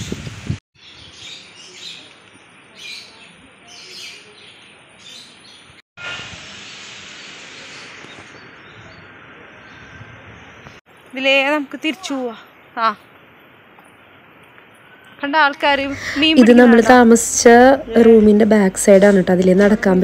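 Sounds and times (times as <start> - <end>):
steady outdoor hiss: 0.0 - 20.0
small birds chirping: 0.8 - 5.8, 7.5 - 15.2.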